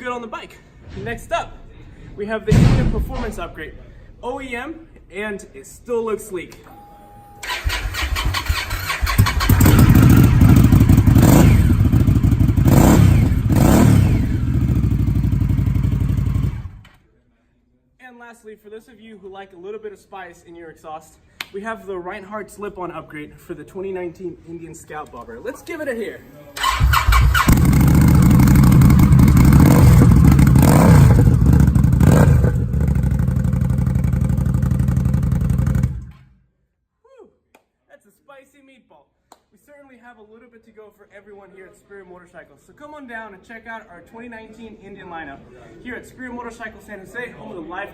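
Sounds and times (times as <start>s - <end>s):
motorcycle engine revving: 7.4s - 16.9s, 26.6s - 36.2s.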